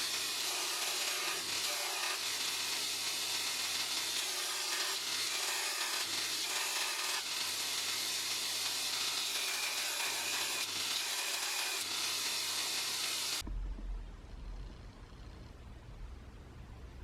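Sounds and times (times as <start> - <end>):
power tool abrasive hiss: 0.0 - 13.4.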